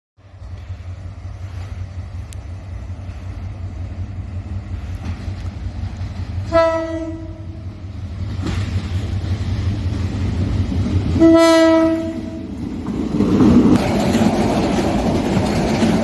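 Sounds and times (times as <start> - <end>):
train rumbling on rails: 0.2 - 16.0
train horn blast: 6.4 - 7.7, 11.2 - 12.4.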